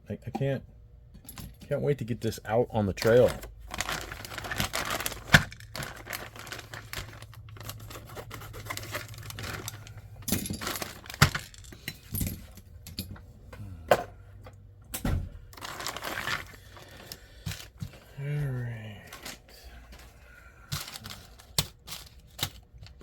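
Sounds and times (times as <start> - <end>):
plastic bag crinkling: 2.9 - 11.9, 15.5 - 17.8, 20.8 - 23.0
small plastic parts rattling: 3.0 - 13.2, 15.5 - 18.0, 20.7 - 23.0.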